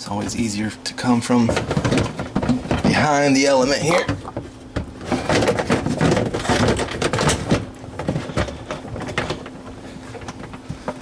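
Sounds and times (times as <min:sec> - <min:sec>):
plastic parts clicking and knocking: 0:01.5 - 0:09.6.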